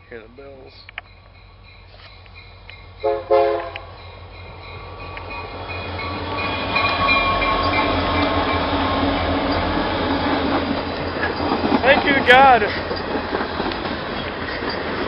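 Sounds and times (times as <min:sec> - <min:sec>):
train rumble: 0:00.0 - 0:15.0
train horn blast: 0:03.0 - 0:03.9.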